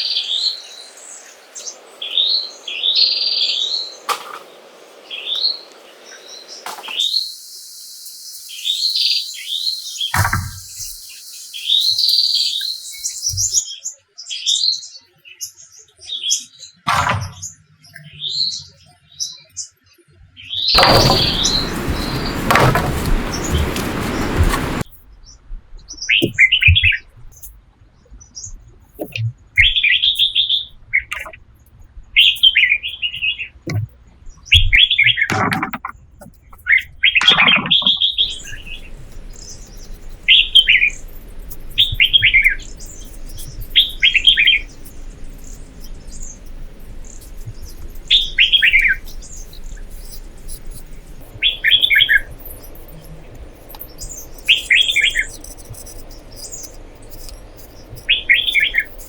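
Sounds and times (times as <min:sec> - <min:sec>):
faint steady hiss: 0:00.0 - 0:13.6, 0:20.8 - 0:24.9, 0:38.2 - 0:59.0
bird chirping: 0:00.0 - 0:14.4, 0:20.4 - 0:24.9, 0:36.4 - 0:59.0
loud deep sounds: 0:20.8 - 0:24.8.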